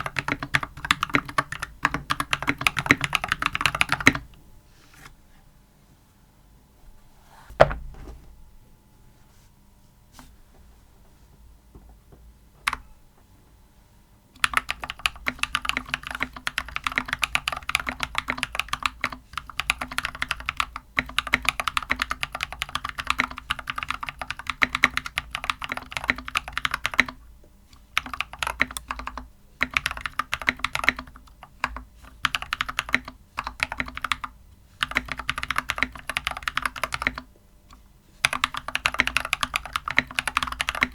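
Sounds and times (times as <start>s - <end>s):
mechanical keyboard typing: 0.0s - 4.3s, 14.4s - 27.2s, 27.9s - 37.3s, 38.2s - 40.9s
single thump: 7.5s - 8.4s.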